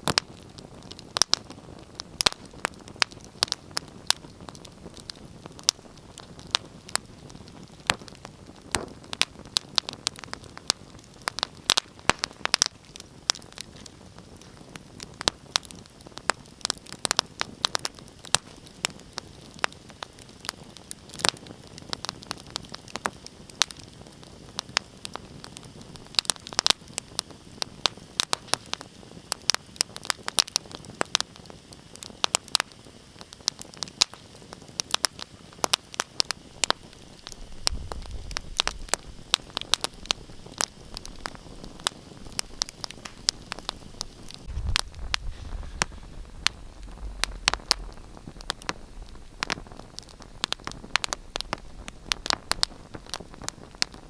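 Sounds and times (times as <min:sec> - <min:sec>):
wood fire crackling and popping: 0:00.0 - 0:54.0
low rumble: 0:44.4 - 0:52.6.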